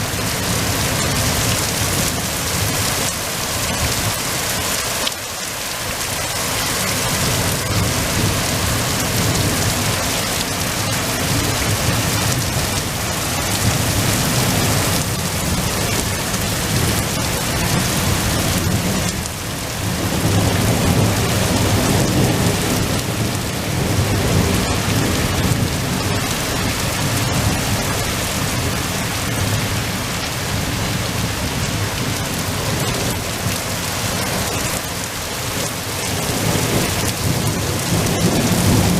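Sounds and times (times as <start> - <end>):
heavy rain pouring: 0.0 - 38.9
thunder rumbling: 6.0 - 38.9.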